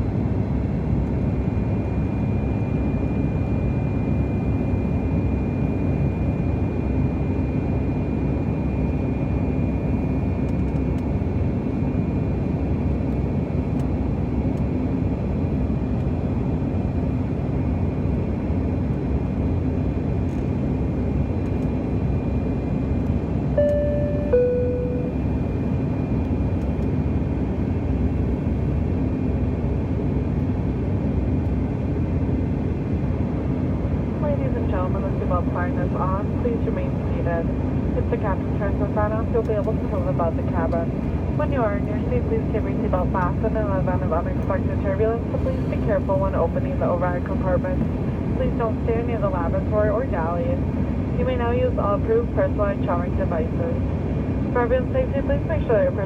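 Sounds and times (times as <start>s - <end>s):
airliner cabin engine rush: 0.0s - 56.0s
two-tone cabin chime: 23.6s - 25.4s.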